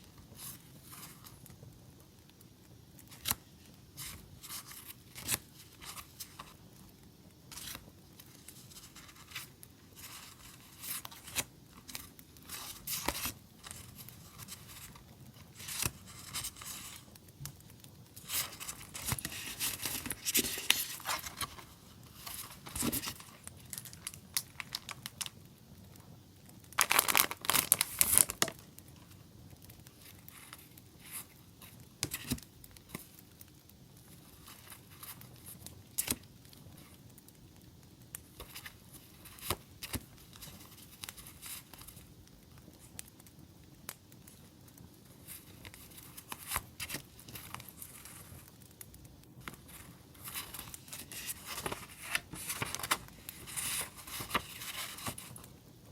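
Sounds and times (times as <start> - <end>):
faint campfire crackles: 0.0 - 55.9
packaging rustling and crinkling: 3.0 - 6.9, 7.5 - 25.4, 26.8 - 33.3, 34.1 - 37.0, 38.1 - 42.1, 44.3 - 55.6.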